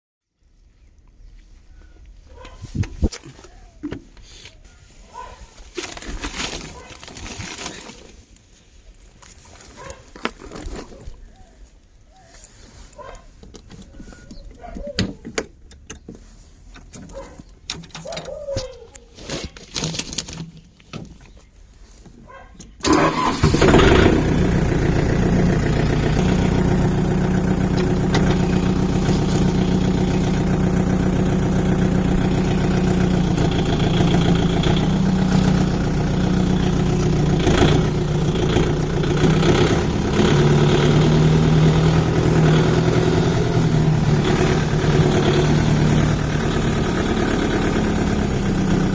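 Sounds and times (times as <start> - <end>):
tractor engine running: 22.8 - 48.9.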